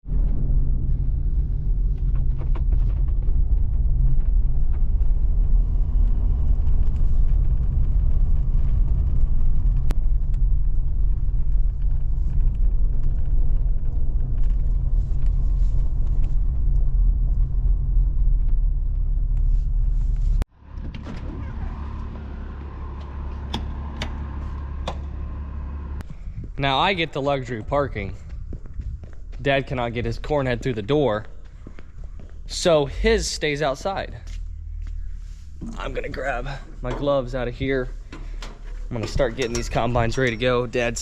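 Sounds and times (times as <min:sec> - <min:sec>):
heavy vehicle engine rumbling: 0:14.8 - 0:26.5, 0:32.4 - 0:41.0.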